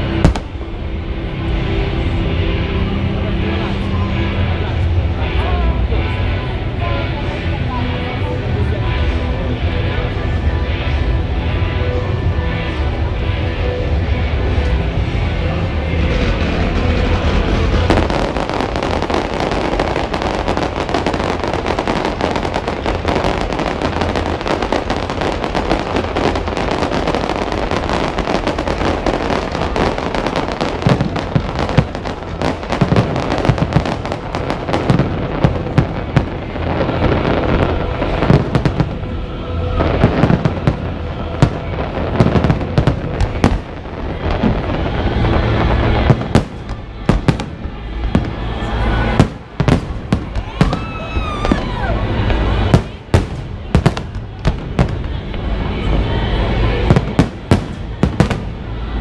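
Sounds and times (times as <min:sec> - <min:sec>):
fireworks crackling: 0:00.0 - 0:59.0
fireworks sharp bangs: 0:15.5 - 0:59.0.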